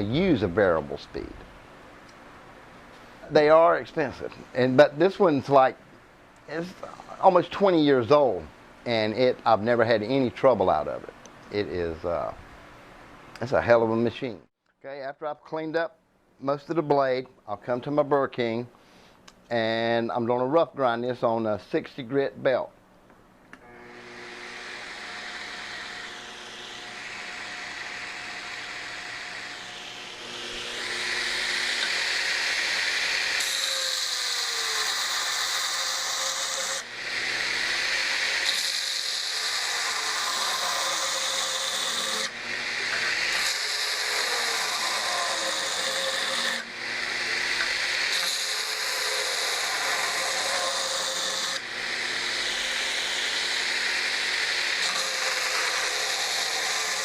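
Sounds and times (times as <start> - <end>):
belt grinder running: 23.6 - 57.0.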